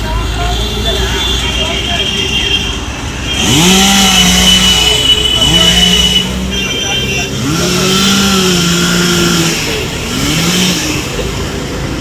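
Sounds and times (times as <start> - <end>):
small petrol engine revving: 3.1 - 6.5, 7.2 - 12.0.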